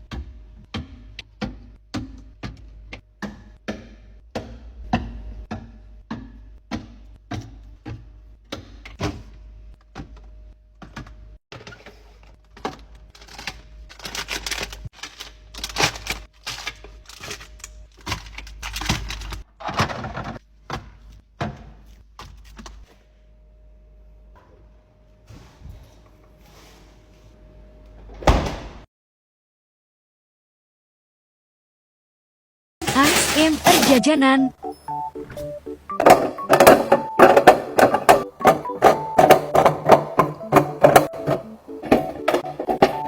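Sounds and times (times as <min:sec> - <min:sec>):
containers clacking and knocking: 0:32.8 - 0:43.0.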